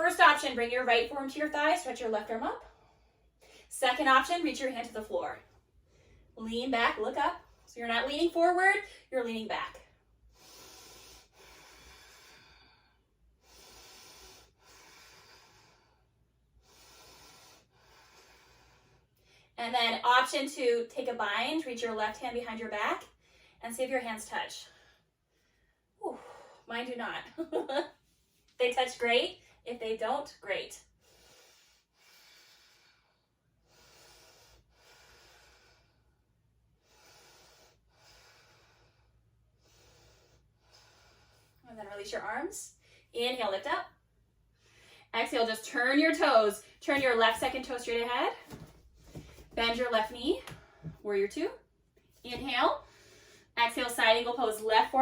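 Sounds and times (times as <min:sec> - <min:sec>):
woman breathing slowly: 0:10.1 - 0:19.6, 0:30.9 - 0:41.6, 0:44.5 - 0:45.1, 0:52.8 - 0:53.6.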